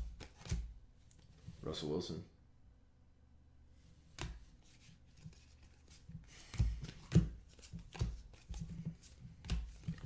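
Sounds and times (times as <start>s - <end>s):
cards tapping on table: 4.2s - 4.4s, 6.5s - 10.0s.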